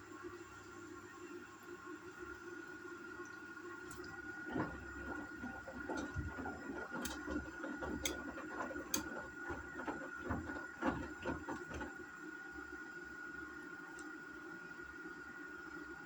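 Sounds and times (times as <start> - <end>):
washing machine motor hum: 0.0 - 16.0
wet laundry thumping in drum: 3.9 - 12.0.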